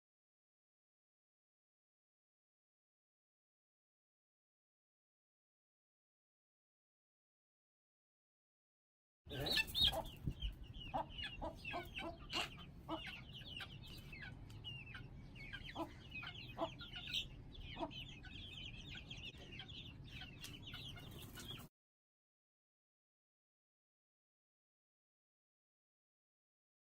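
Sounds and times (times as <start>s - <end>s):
chicks peeping: 9.3s - 21.7s.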